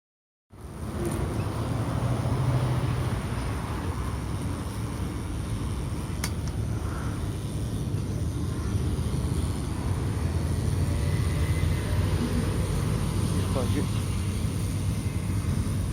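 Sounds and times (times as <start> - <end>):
sharp click: 6.2 - 6.6.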